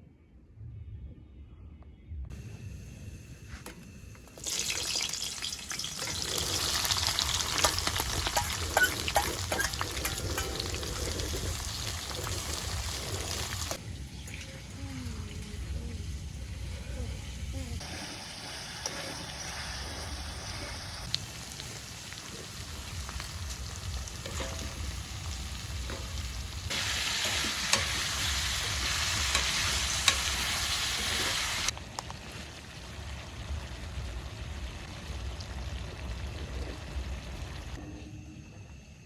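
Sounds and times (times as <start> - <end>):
food sizzling in a pan: 4.4 - 13.8, 14.5 - 37.8
stirring clicks: 7.4 - 11.5.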